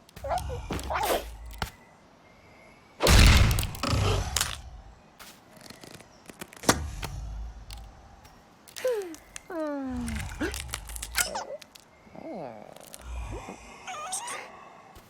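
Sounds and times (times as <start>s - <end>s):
loud noisy crash-like burst: 3.1s - 4.0s.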